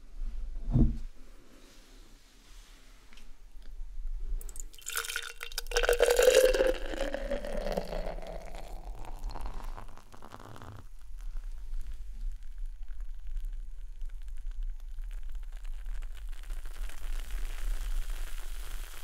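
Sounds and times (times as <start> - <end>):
beer pouring into a glass: 4.4 - 11.8
beer fizzing: 4.4 - 19.0.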